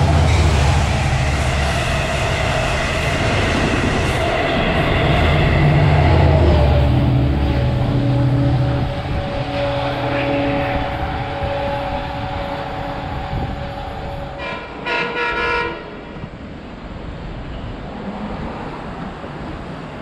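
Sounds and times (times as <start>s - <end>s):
diesel train rumbling: 0.0s - 20.0s
train horn blasts: 5.1s - 16.2s.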